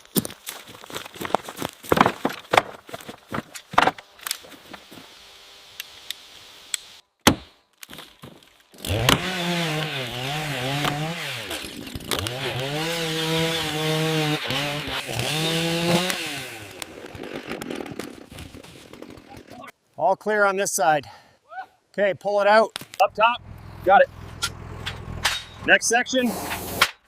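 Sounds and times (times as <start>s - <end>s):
chainsaw running: 8.8s - 18.1s, 26.3s - 26.8s.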